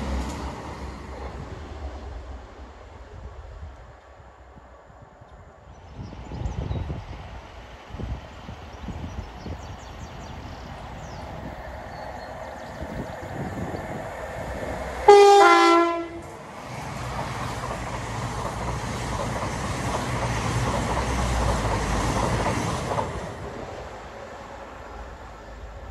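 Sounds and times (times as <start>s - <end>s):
train wheels rumbling on rails: 0.0s - 4.7s, 5.8s - 25.9s
two-tone train horn: 15.0s - 16.3s.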